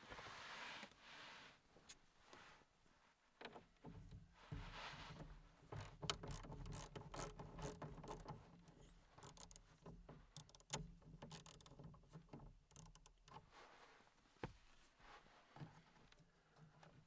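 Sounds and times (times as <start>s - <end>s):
metallic clicks of hand tools: 6.0s - 13.5s.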